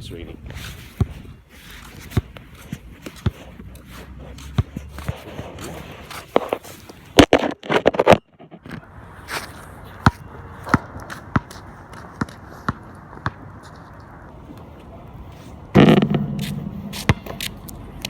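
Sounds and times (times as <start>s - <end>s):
basketball bouncing: 15.8s - 17.7s.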